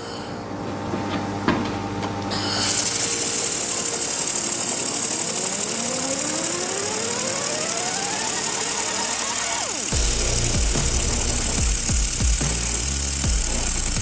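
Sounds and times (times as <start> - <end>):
laser welding machine hissing: 2.7 - 14.0
thin rising whine: 2.7 - 14.0.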